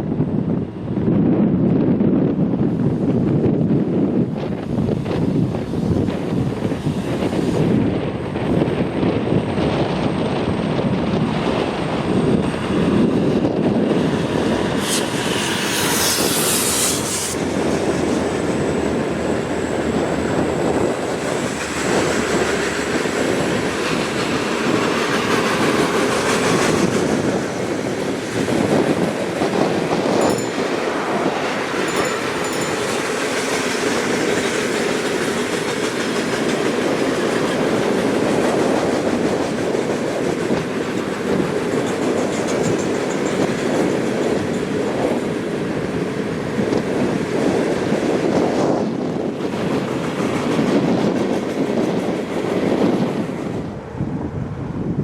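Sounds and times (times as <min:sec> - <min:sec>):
steel wheels clacking over rail joints: 0:09.5 - 0:53.4.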